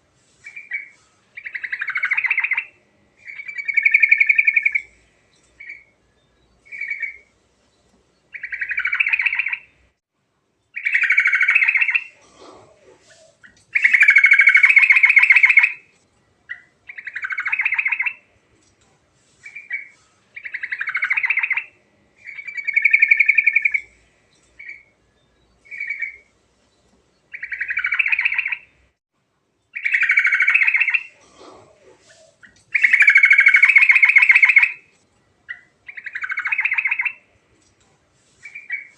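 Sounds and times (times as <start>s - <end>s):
bulbul singing: 0.4s - 7.3s, 8.2s - 9.8s, 13.0s - 15.8s, 16.5s - 18.3s, 19.4s - 26.3s, 32.0s - 34.8s, 35.5s - 37.3s.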